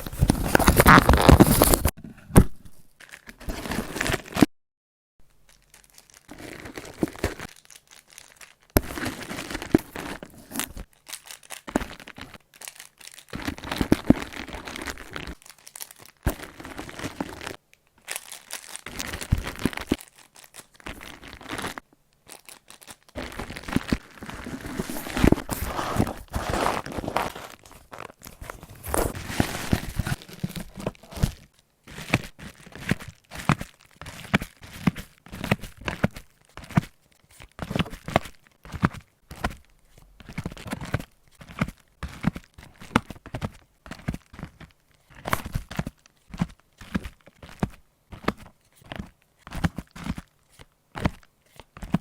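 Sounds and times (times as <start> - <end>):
plastic packaging crinkling: 0.0 - 1.9, 5.2 - 47.6
plastic tearing: 0.0 - 1.9, 5.5 - 34.7.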